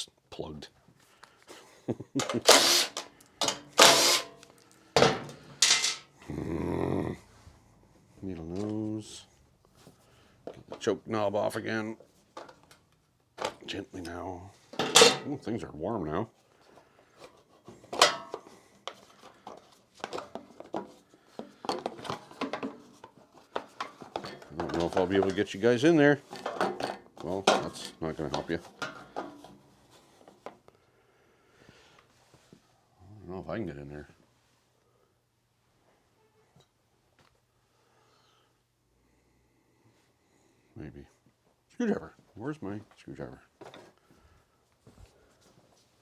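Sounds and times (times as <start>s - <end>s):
handheld power tool bursts: 2.2s - 6.0s.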